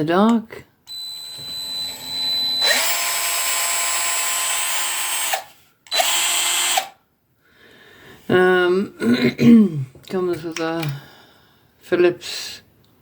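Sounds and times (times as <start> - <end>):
cordless drill running: 0.9 - 7.0.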